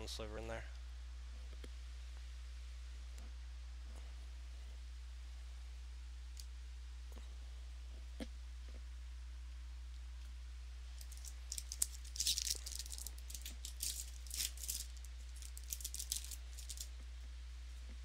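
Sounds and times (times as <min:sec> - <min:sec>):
steady low hum: 0:00.0 - 0:18.0
trading cards flicking: 0:11.0 - 0:16.9.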